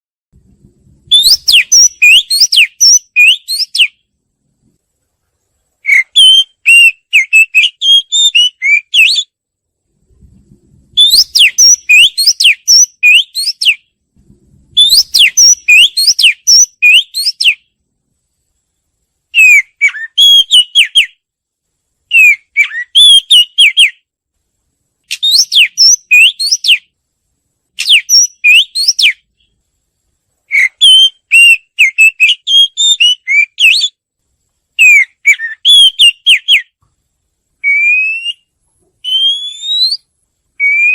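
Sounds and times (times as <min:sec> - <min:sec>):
bird singing whistled phrases: 0:01.1 - 0:04.0, 0:05.8 - 0:09.4, 0:11.0 - 0:13.9, 0:14.8 - 0:17.7, 0:19.3 - 0:21.2, 0:22.1 - 0:24.0, 0:25.1 - 0:26.9, 0:27.8 - 0:29.2, 0:30.5 - 0:34.0, 0:34.8 - 0:36.8, 0:37.6 - 0:40.9.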